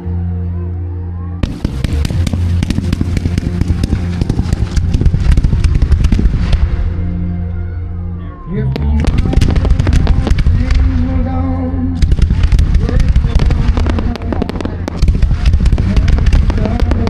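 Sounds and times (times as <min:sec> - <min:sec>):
music with long low notes: 0:00.0 - 0:17.0
fireworks bangs and crackles: 0:01.4 - 0:07.1, 0:08.7 - 0:11.4, 0:12.0 - 0:17.0.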